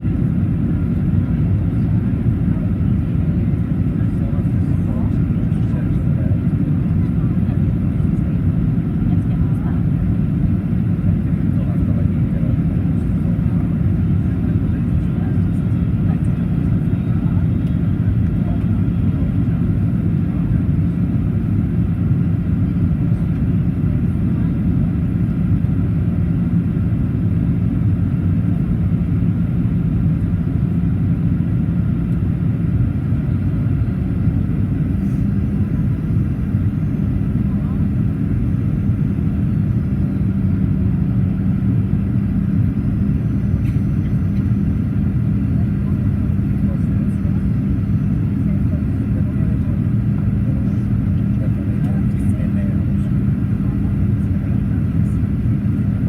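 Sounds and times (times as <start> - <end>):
airplane cabin drone: 0.0 - 56.0
faint hum: 31.0 - 56.0.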